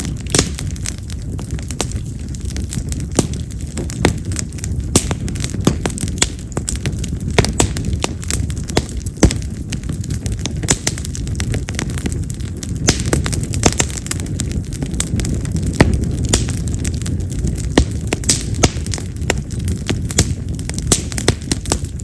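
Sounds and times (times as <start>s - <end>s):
firewood crackling and popping: 0.0s - 22.0s
flames rushing: 0.0s - 22.0s.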